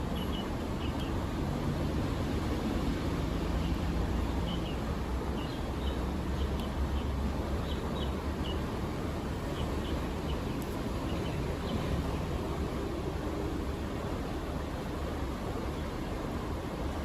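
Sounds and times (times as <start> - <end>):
small birds chirping: 3.6 - 8.7, 9.4 - 12.0.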